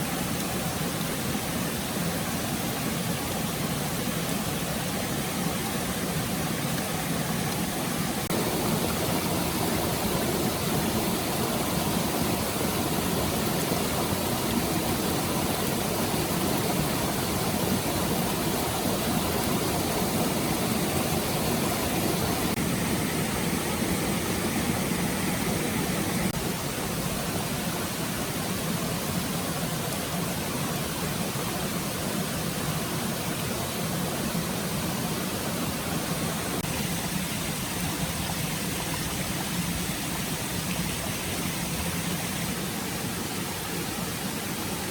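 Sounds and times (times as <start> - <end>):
stream water flowing: 0.0 - 44.9.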